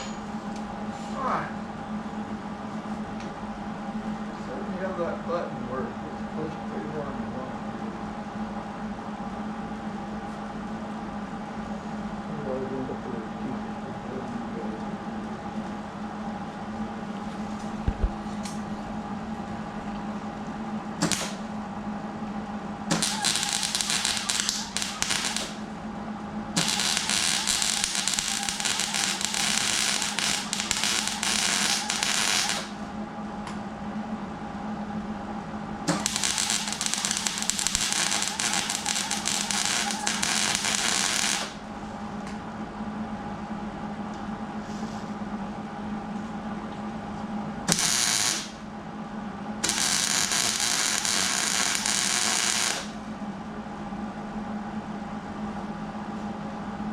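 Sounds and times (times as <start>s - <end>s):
machine hum: 0.0s - 56.9s
arc torch crackling hiss: 21.0s - 21.5s, 22.9s - 25.7s, 26.6s - 32.8s, 35.9s - 41.6s, 47.7s - 48.6s, 49.6s - 53.0s.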